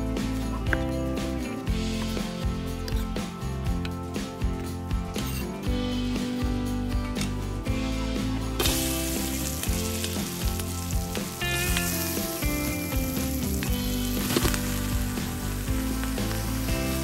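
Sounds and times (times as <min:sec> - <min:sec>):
background music: 0:00.0 - 0:17.0
hot oil sizzling in a wok: 0:08.5 - 0:17.0
food knocking into a wok: 0:14.2 - 0:15.0.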